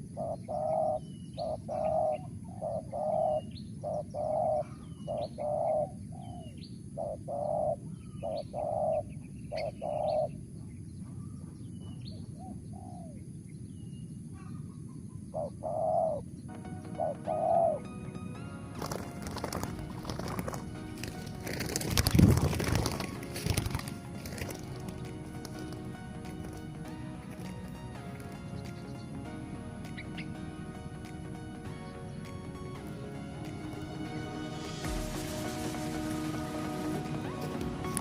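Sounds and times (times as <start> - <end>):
dove cooing: 0.0 - 10.4, 12.4 - 13.2, 14.4 - 17.8, 18.7 - 29.1
faint music: 7.2 - 38.0.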